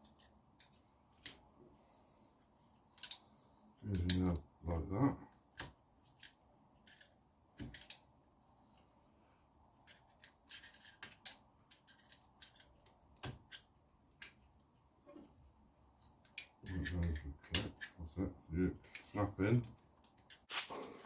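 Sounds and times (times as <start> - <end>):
small metal parts clicking: 0.0 - 1.4, 3.0 - 3.2, 3.9 - 4.4, 5.6 - 8.0, 9.8 - 14.4, 16.1 - 18.0.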